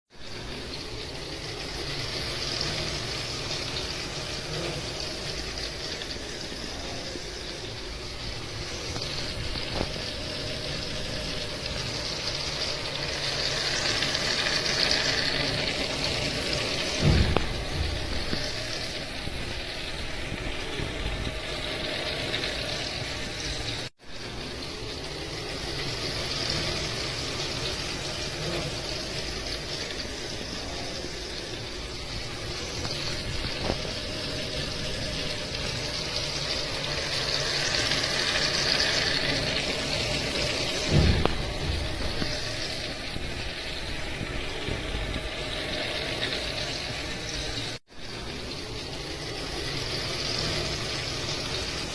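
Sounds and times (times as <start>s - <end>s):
heavy rain falling: 1.2s - 51.9s
low thump: 17.0s - 18.6s, 40.9s - 42.4s.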